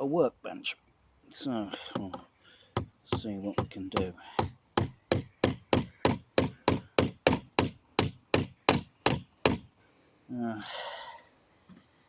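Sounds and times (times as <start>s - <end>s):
hammer blows on wooden plank: 1.9s - 9.7s.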